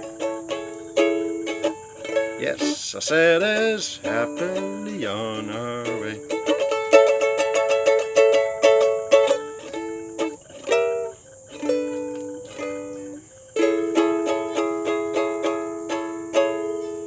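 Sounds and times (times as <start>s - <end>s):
plucked string instrument strumming: 0.0s - 17.0s.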